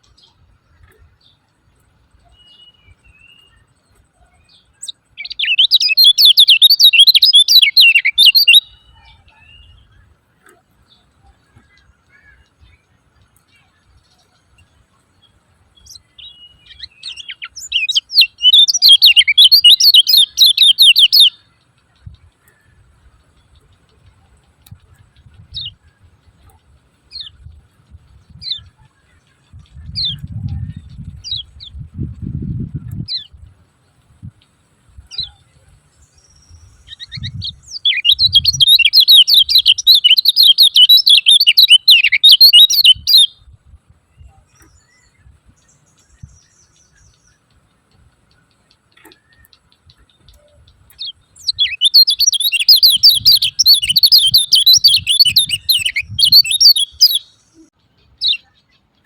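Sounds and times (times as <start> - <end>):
bird shrill chattering: 5.2 - 8.8, 16.7 - 21.4, 36.9 - 43.3, 51.0 - 57.2
bird chip notes: 44.1 - 59.0.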